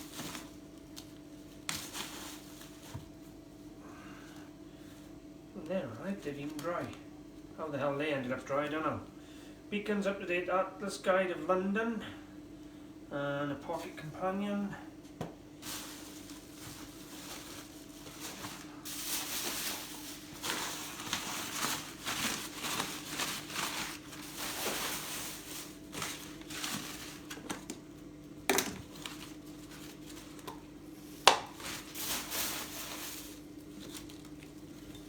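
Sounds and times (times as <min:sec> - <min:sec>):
hands rummaging through a box: 0:15.6 - 0:27.8, 0:31.2 - 0:35.0
paper rustling: 0:15.6 - 0:27.8, 0:28.8 - 0:30.5, 0:31.2 - 0:35.0.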